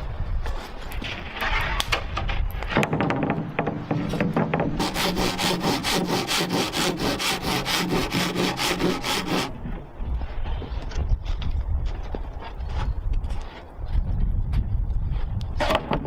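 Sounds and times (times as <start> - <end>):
hand saw cutting wood: 4.1 - 9.6.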